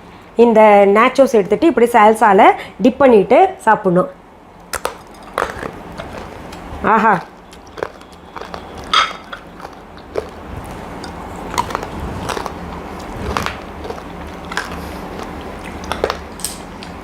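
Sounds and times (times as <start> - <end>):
person crunching chips: 4.8 - 17.0.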